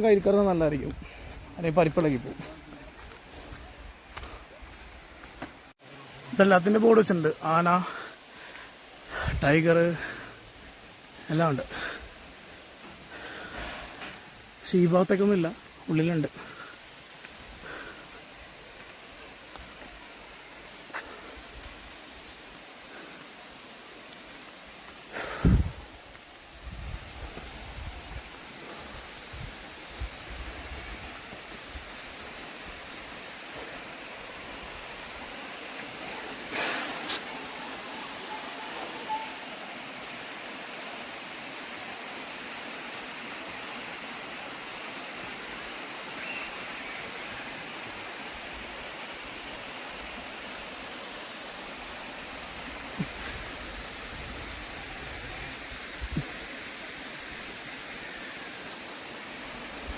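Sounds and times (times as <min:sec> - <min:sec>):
waterfall rushing: 0:04.6 - 0:59.9.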